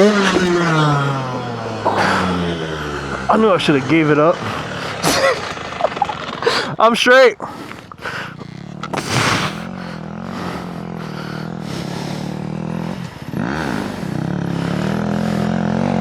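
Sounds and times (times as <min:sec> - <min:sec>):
scraping clatter: 0:00.0 - 0:10.9
dirt bike engine running: 0:00.0 - 0:16.0.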